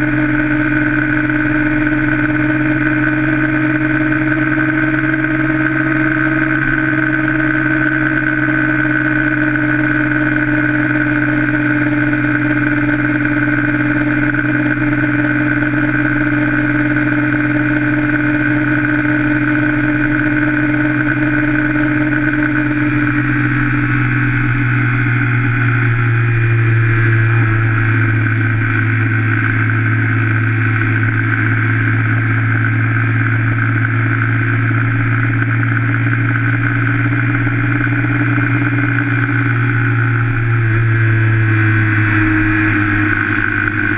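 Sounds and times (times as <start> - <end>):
engine running at high revs: 0.0 - 43.9.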